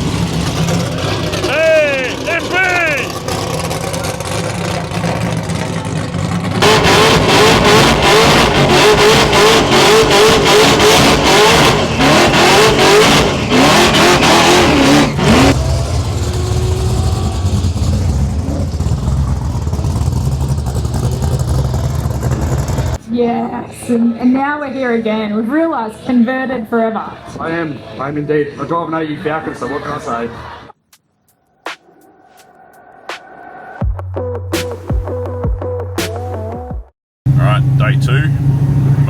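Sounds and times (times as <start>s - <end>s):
muscle car engine revving: 0.0s - 23.0s, 37.3s - 39.0s.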